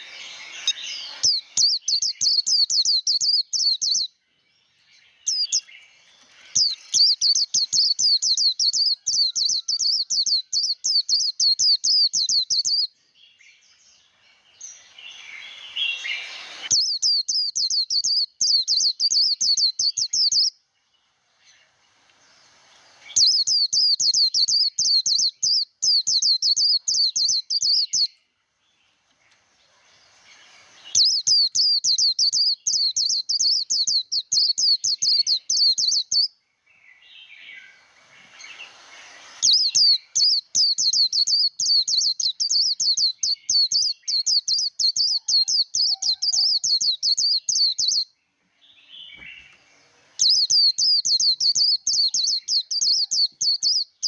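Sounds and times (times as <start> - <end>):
bird singing chattering song: 0.0 - 54.0
brief rushing noise: 15.0 - 16.7.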